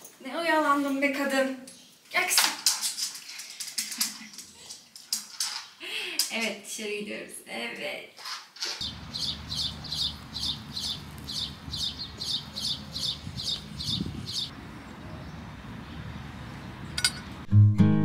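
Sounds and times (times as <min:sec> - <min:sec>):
bird chirping: 0:08.8 - 0:17.4.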